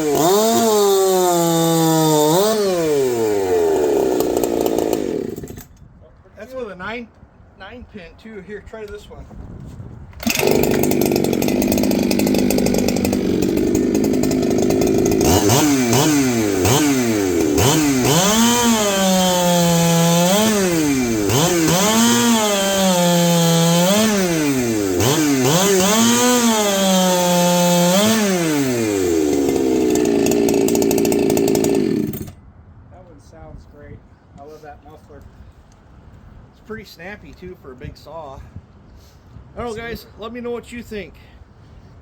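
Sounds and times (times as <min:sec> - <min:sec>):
chainsaw revving: 0:00.0 - 0:05.6, 0:10.2 - 0:32.4.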